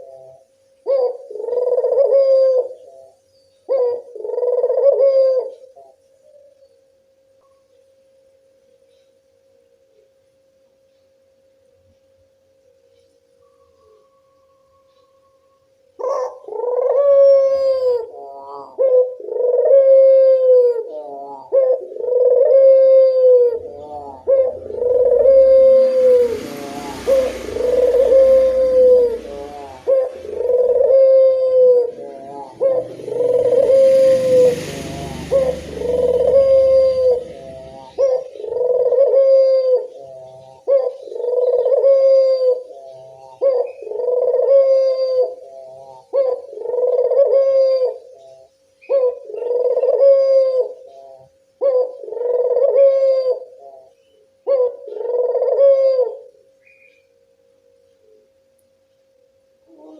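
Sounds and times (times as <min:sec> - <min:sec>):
dove cooing: 0:00.0 - 0:06.6, 0:13.4 - 0:57.1, 0:59.7 - 0:59.9
faint hiss: 0:23.7 - 0:46.9
low rumble: 0:24.5 - 0:38.4.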